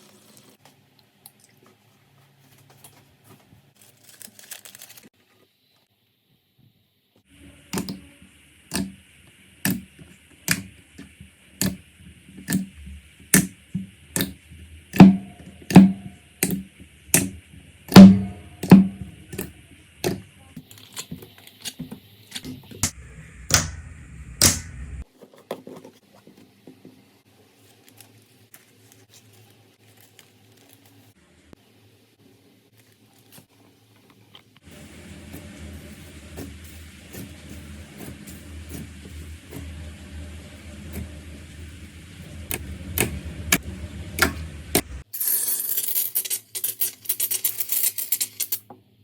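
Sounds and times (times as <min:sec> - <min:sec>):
soft handling sounds: 0:01.4 - 0:05.9, 0:25.1 - 0:31.2.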